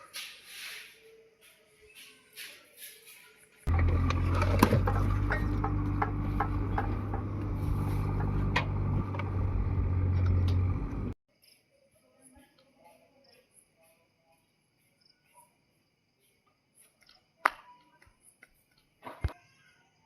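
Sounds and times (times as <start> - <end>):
diesel engine running: 3.7 - 11.2
insect chirps: 11.3 - 20.0.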